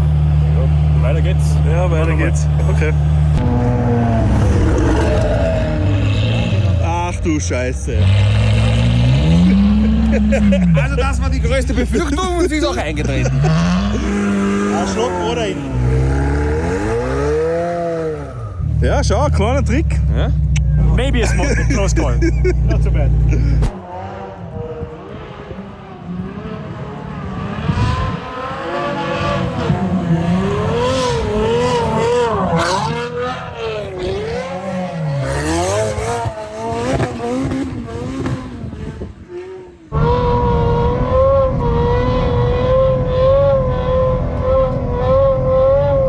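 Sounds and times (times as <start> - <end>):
car engine revving: 0.0 - 46.0.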